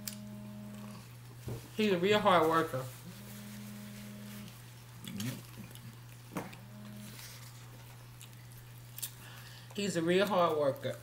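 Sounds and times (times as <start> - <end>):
held low tones: 0.0 - 1.1, 3.0 - 5.7, 6.5 - 7.4
steady low hum: 0.0 - 11.0
person chewing: 4.4 - 9.8.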